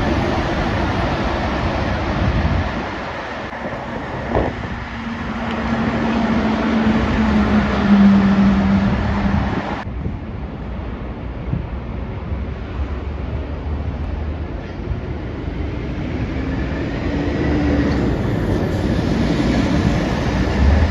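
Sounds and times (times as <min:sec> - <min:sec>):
heavy truck passing: 0:00.0 - 0:10.1, 0:16.2 - 0:20.9
traffic noise: 0:00.0 - 0:20.9.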